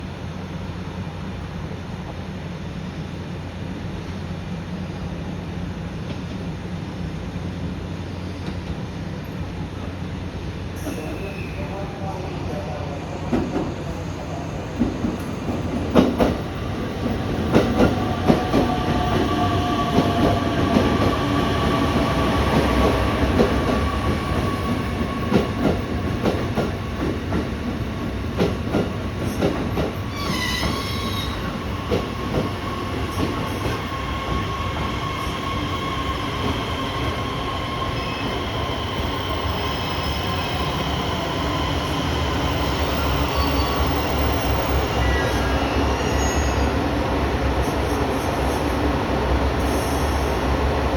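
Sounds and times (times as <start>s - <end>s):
brake squeal: 45.0s - 46.8s.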